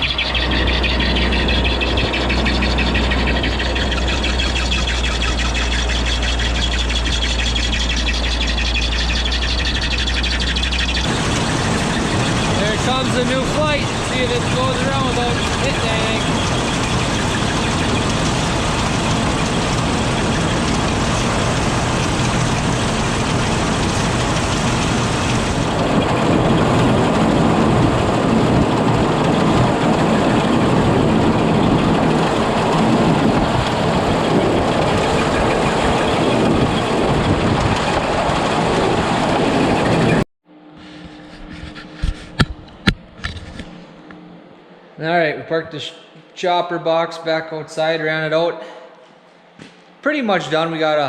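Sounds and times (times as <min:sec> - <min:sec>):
loud machine running: 0:00.0 - 0:40.2
low hum: 0:00.0 - 0:45.4.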